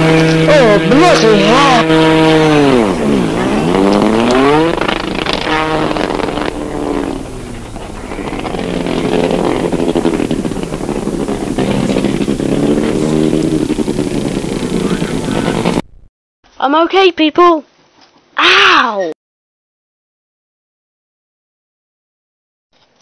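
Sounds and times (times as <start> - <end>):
vehicle engine revving: 0.0 - 16.1.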